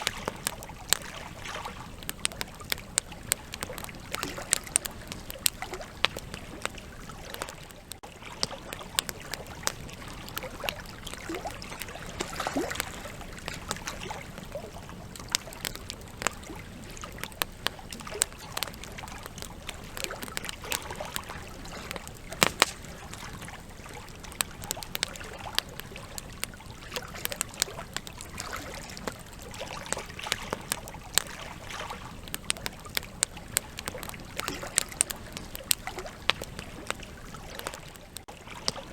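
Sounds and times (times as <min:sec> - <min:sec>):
campfire pops and snaps: 0:00.0 - 0:38.9
hiss of flames: 0:17.5 - 0:23.5.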